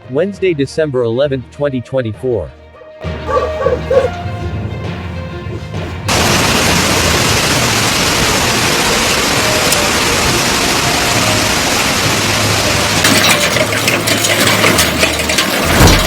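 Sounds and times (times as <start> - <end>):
hail and heavy rain: 6.1 - 16.0
hailstones clicking: 6.1 - 16.0.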